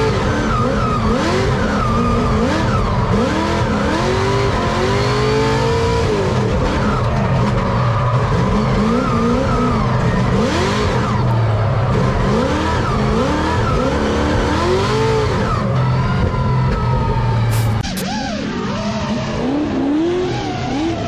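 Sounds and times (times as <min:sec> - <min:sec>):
car engine revving: 0:17.1 - 0:18.1.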